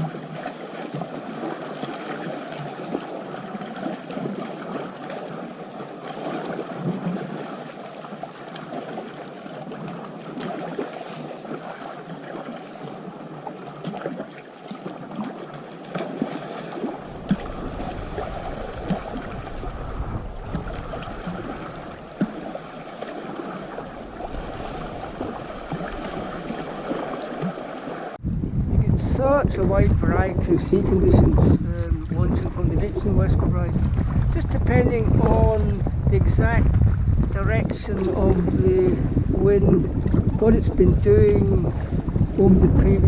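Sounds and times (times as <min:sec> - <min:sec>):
water splashing against kayak: 0:00.0 - 0:28.2, 0:29.0 - 0:43.0
wind rumble on microphone: 0:16.8 - 0:43.0.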